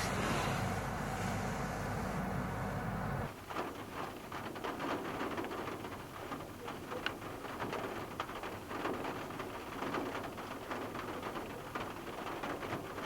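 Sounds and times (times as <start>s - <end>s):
heavy rain falling: 3.3s - 13.0s.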